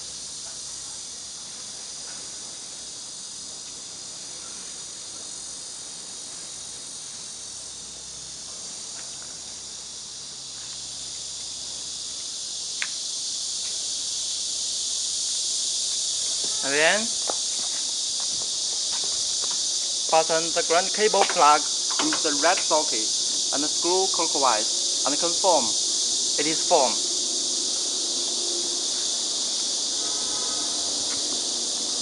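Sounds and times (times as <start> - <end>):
high-pitched hiss: 0.0 - 32.0.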